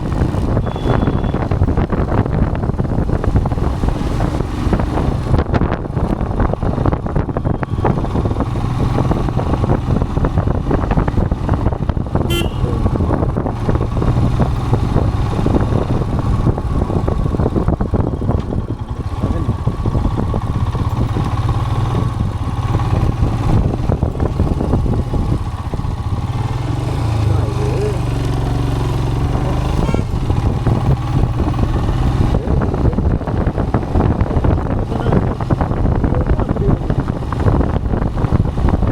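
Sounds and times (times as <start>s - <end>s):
motorcycle engine running: 0.0s - 38.9s
wind buffeting microphone: 0.0s - 38.9s
short horn toot: 0.6s - 1.5s, 12.3s - 12.9s, 29.7s - 30.2s.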